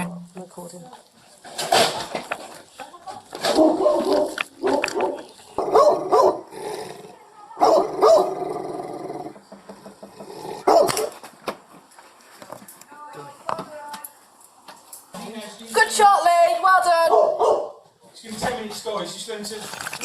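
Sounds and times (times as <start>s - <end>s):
dog barking and snarling: 3.5s - 9.3s, 10.4s - 11.2s, 17.1s - 17.8s
dog growling: 3.7s - 11.1s, 19.6s - 20.0s.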